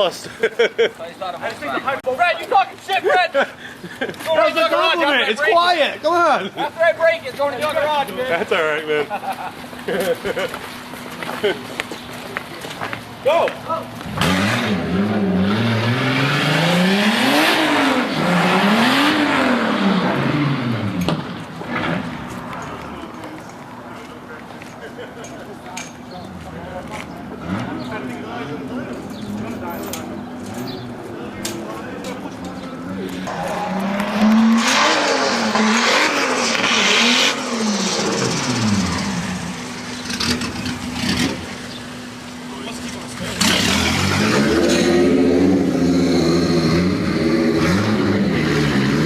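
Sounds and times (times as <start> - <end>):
car engine revving: 13.9 - 22.6, 27.2 - 29.5, 30.2 - 49.0.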